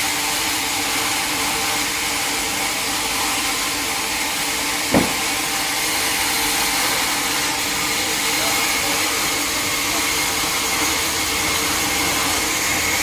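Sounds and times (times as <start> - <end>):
sawmill machinery motor hum: 0.0 - 13.0
single knock: 4.9 - 5.3.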